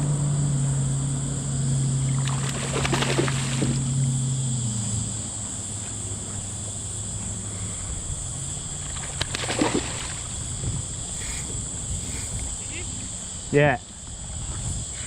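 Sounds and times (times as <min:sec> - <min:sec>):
water sloshing against kayak hull: 0:02.0 - 0:03.9, 0:07.1 - 0:13.3
knock or splash: 0:02.2 - 0:03.8, 0:09.2 - 0:10.2.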